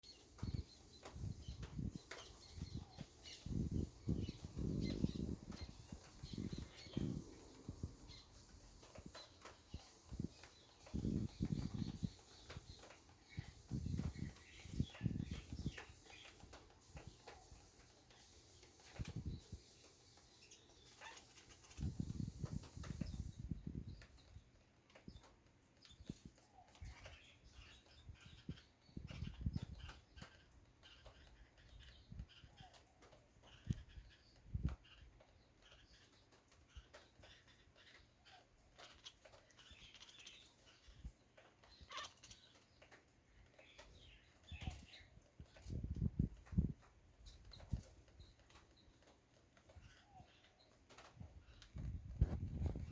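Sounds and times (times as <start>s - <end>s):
faint animal chirps: 34.8s - 42.6s.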